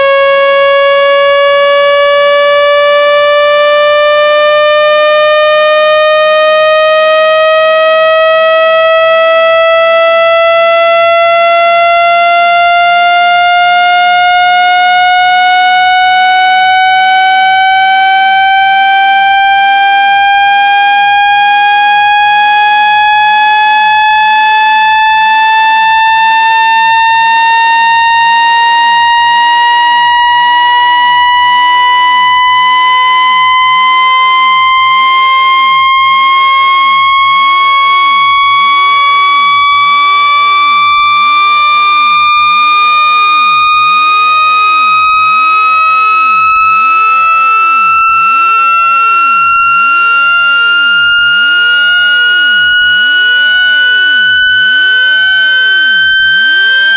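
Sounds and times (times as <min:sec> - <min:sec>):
buzzy tone sweeping upward: 0:38.0 - 0:56.9.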